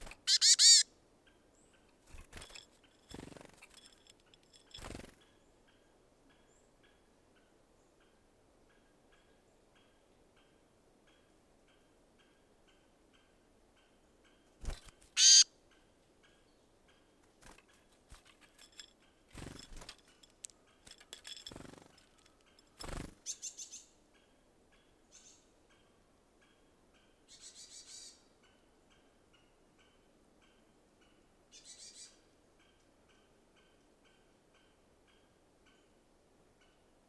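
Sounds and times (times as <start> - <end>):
small bird call: 0.0 - 0.9, 15.2 - 15.5
high chattering bird calls: 0.2 - 0.8, 15.2 - 15.4
flutters and knocks at feeder: 2.0 - 5.2, 17.4 - 23.2.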